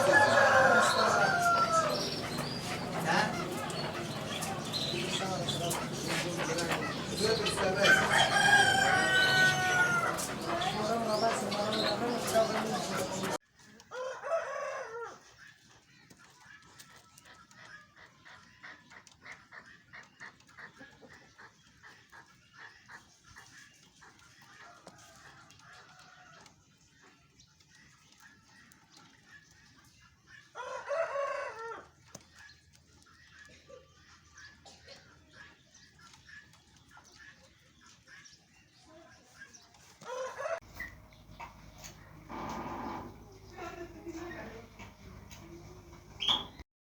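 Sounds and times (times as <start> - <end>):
partridge chuck calls: 0.0 - 13.4, 40.3 - 46.6.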